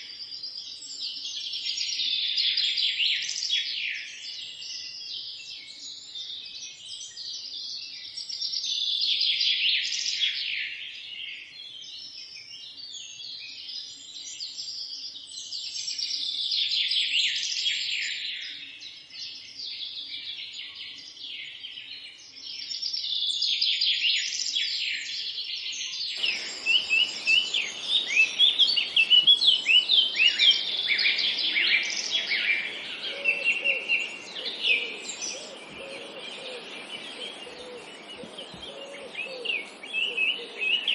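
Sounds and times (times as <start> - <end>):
songbirds chirping and trilling: 10.8 - 40.9
steady background hiss: 26.2 - 40.9.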